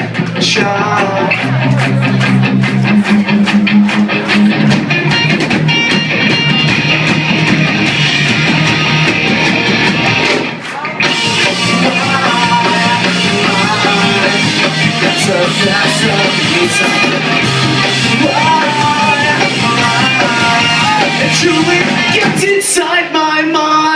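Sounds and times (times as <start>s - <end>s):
rock band with electric guitar: 0.0s - 23.9s.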